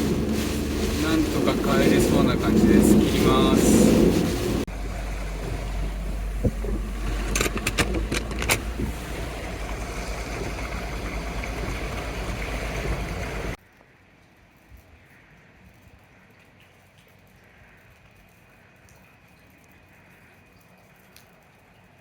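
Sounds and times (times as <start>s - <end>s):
car engine rumbling: 0.0s - 13.6s.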